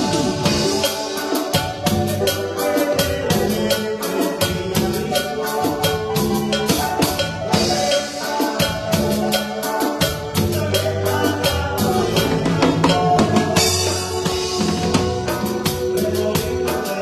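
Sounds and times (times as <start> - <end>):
drum kit quick beat: 0.0 - 17.0
instrumental band music: 0.0 - 17.0.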